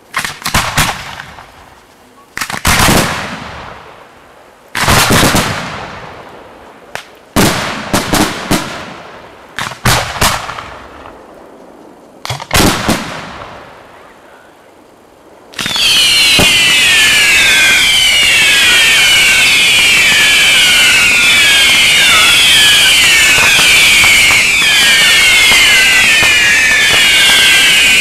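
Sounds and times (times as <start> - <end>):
falling whistles: 15.6 - 28.0.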